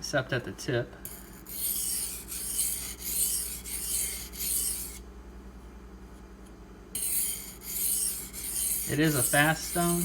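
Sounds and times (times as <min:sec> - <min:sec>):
knife scraping on whetstone: 0:01.1 - 0:05.0, 0:07.0 - 0:10.0.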